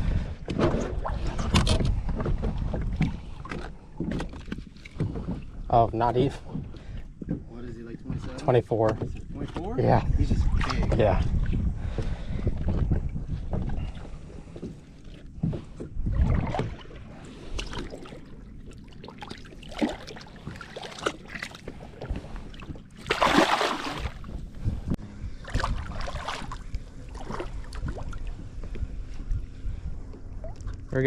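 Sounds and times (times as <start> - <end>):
wind on microphone: 0.0 - 4.4, 9.0 - 18.5, 20.4 - 31.0.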